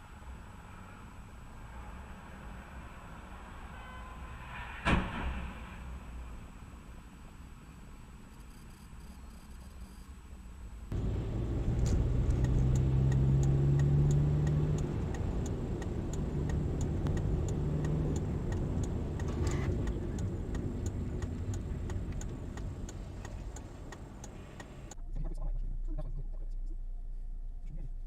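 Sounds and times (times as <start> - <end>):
car engine accelerating: 10.9 - 25.0
steady ticking: 10.9 - 25.0.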